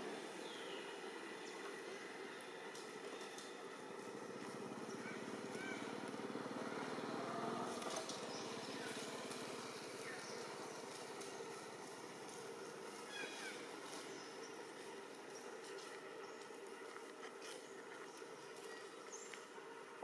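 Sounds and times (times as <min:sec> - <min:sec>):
outdoor background noise: 0:00.0 - 0:20.0
passing engine: 0:04.3 - 0:11.8.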